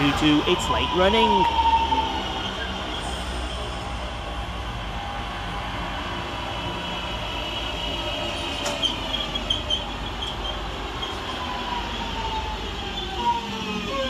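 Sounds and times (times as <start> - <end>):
train wheels rumbling on rail: 0.0 - 14.0
high wheel squeaks: 8.2 - 11.7.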